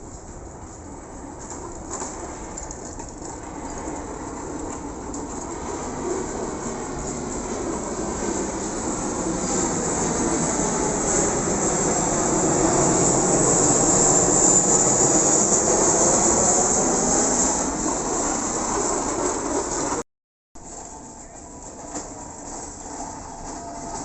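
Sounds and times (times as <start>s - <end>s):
aircraft passing low overhead: 5.8s - 20.0s.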